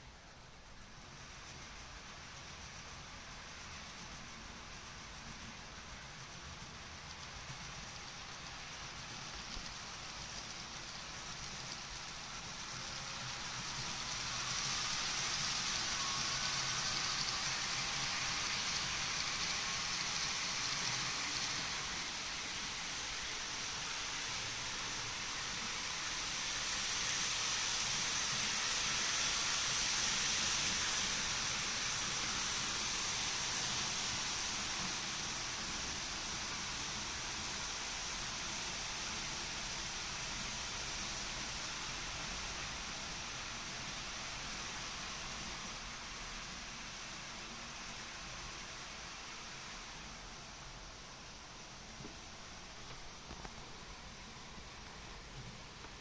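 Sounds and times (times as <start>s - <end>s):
faint motor whine: 0.0s - 56.0s
model train wheels on rail: 0.0s - 56.0s.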